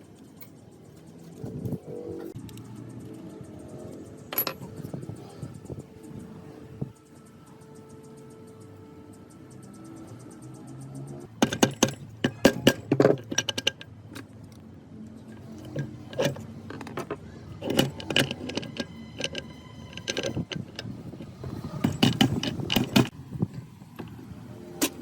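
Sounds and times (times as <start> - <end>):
metal parts clanking: 4.1 - 5.8, 11.3 - 14.6, 15.2 - 23.1, 24.8 - 25.0
ringing metallic tone: 17.4 - 23.1.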